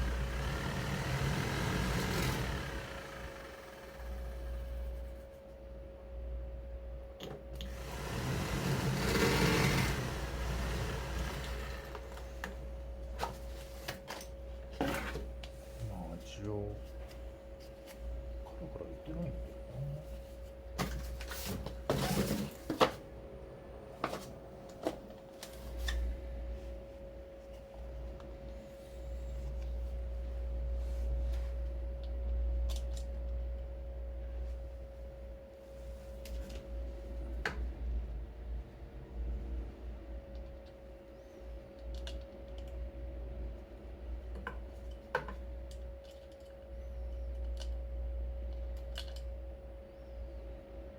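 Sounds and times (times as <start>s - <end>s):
blower motor whining: 0.0s - 4.9s, 7.6s - 12.6s.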